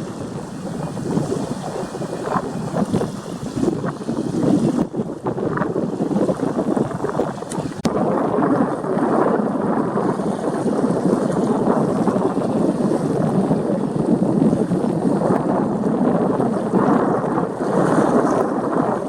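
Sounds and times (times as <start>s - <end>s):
surf washing: 0.0s - 19.0s
wind buffeting microphone: 0.0s - 19.0s.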